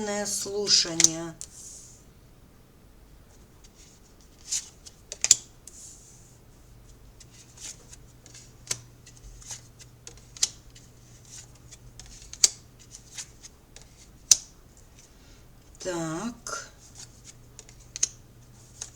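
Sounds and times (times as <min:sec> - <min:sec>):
cards clicking on a table: 0:04.4 - 0:05.5, 0:07.3 - 0:15.1, 0:16.8 - 0:18.9.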